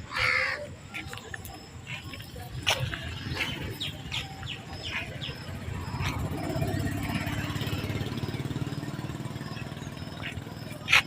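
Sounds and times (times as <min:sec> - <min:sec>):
bird chirping: 0:00.1 - 0:11.0
vehicle engine running: 0:01.9 - 0:11.0.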